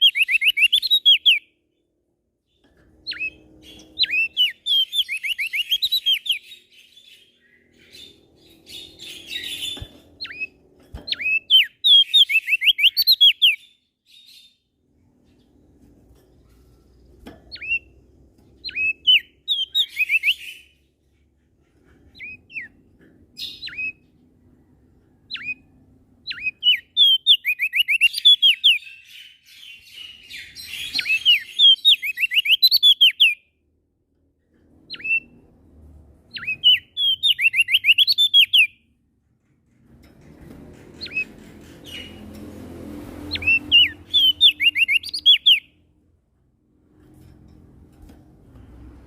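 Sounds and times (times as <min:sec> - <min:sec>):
songbird whistling: 0:00.0 - 0:01.5, 0:03.0 - 0:14.5, 0:18.6 - 0:20.8, 0:23.4 - 0:24.0, 0:25.3 - 0:33.4, 0:34.9 - 0:35.4, 0:36.3 - 0:38.8, 0:43.3 - 0:45.8.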